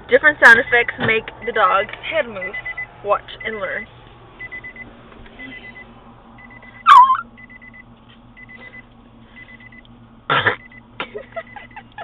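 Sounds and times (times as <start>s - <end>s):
short electronic beeps: 2.4s - 3.6s, 4.4s - 7.8s, 8.4s - 8.8s, 9.4s - 9.8s, 10.6s - 10.8s
dog yipping: 6.9s - 7.2s.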